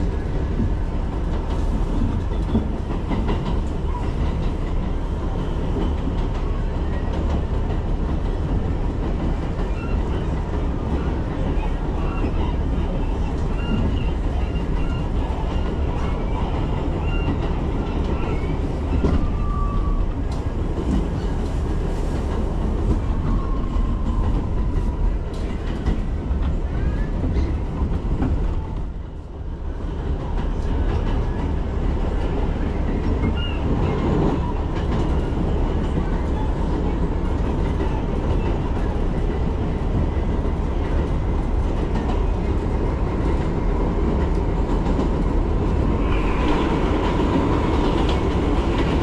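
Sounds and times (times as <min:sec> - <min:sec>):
subway train wheels rumbling: 0:00.0 - 0:49.0
train wheel squeals: 0:09.3 - 0:20.4, 0:32.6 - 0:38.9.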